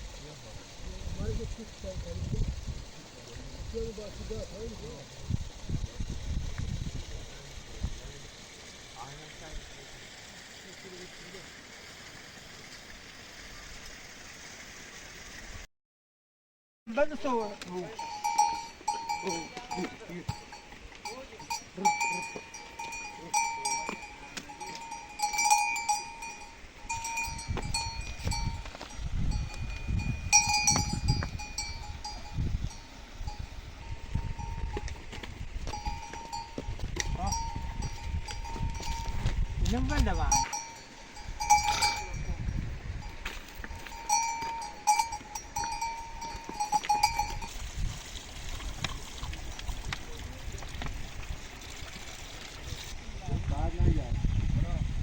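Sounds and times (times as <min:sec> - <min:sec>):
livestock bells clanking: 0:17.2 - 0:47.8.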